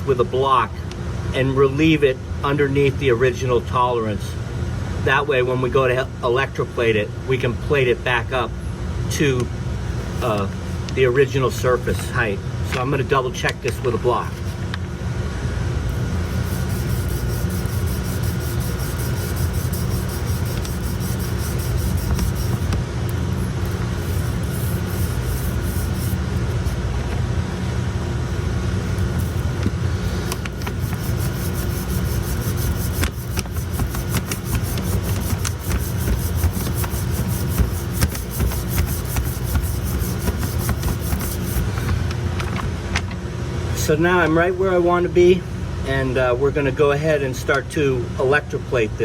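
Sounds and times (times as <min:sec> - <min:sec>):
low machinery hum: 0:00.0 - 0:49.0
hand block rubbing metal: 0:15.9 - 0:26.8, 0:28.9 - 0:42.2.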